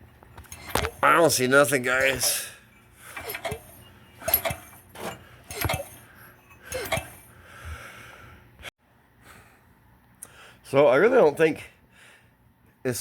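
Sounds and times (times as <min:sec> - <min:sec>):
metal tools clinking and knocking: 0:00.1 - 0:07.2.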